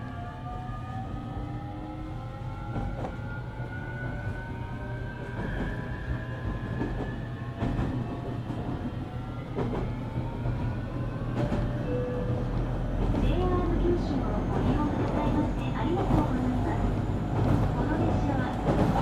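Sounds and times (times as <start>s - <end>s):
train rumble: 0.0s - 19.0s
rail joint clacks: 9.5s - 19.0s.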